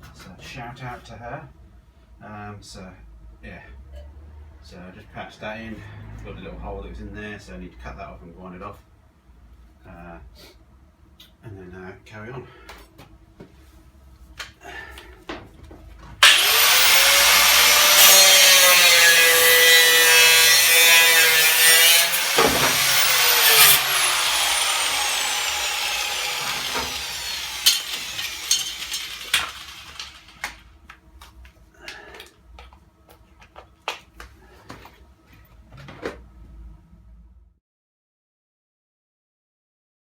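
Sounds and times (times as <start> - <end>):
angle grinder grinding steel: 16.2 - 30.6.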